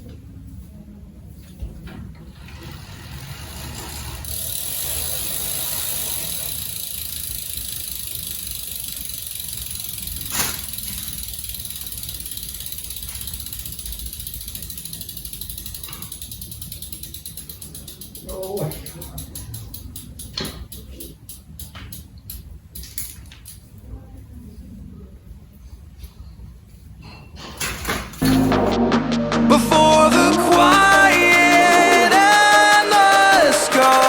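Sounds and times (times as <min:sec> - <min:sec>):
bicycle wheel hiss: 0:02.4 - 0:18.4
fast even ticking: 0:29.4 - 0:34.0.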